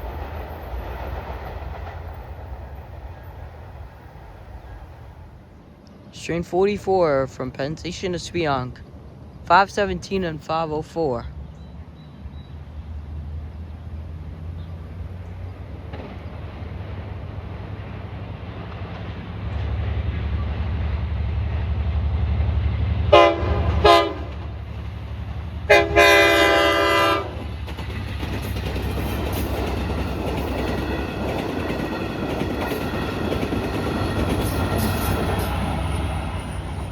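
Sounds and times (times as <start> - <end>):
wheels rushing on rails: 0.0 - 6.1, 11.4 - 36.9
locomotive engine rumble: 0.0 - 36.9
train horn: 23.1 - 24.5, 25.7 - 27.4.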